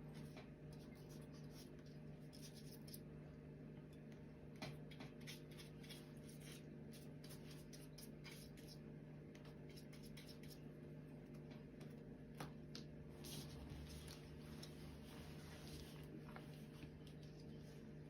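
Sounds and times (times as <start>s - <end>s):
paintbrush scratching on paper: 0.2s - 3.0s, 5.2s - 8.8s, 13.1s - 17.5s.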